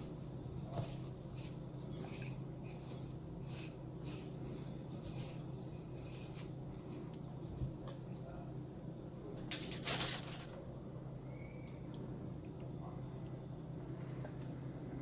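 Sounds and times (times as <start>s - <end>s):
breadcrumbs rustling: 0.0s - 8.5s, 9.5s - 10.6s.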